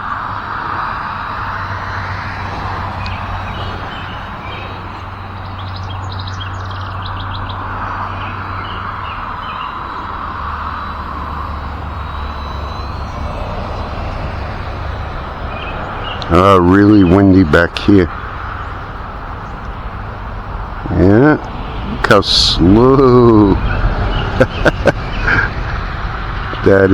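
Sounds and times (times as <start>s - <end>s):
birds chirping: 0.0s - 26.9s
wind rumbling on microphone: 0.0s - 26.9s.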